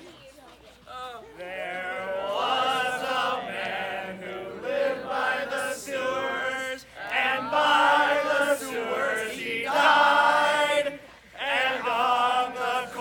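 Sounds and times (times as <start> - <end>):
group of voices singing: 1.4 - 13.0.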